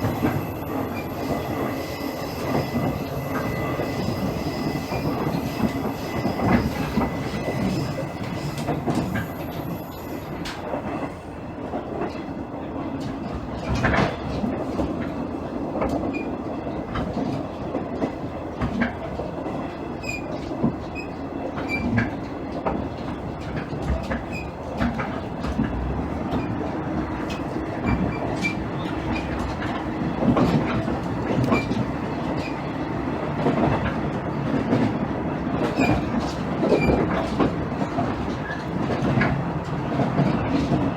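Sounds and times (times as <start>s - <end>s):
high wheel squeal: 0.0s - 10.4s
diesel railcar engine and wheels rumbling: 0.0s - 40.9s.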